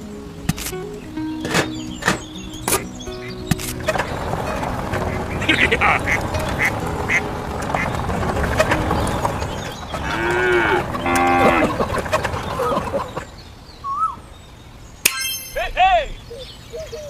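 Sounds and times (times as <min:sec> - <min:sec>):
sharp click: 0:00.5 - 0:00.8, 0:03.5 - 0:03.8
cow mooing: 0:10.0 - 0:11.9.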